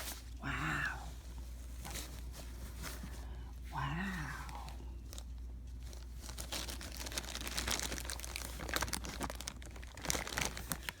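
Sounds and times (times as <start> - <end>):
packaging wrap crinkling: 5.0 - 11.0.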